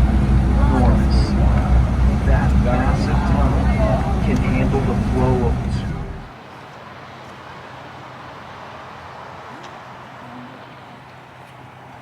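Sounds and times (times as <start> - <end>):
low steady hum: 0.0 - 6.3.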